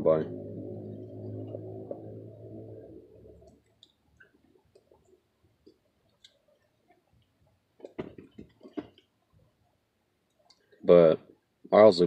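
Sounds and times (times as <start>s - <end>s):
passing car engine: 0.0s - 3.6s.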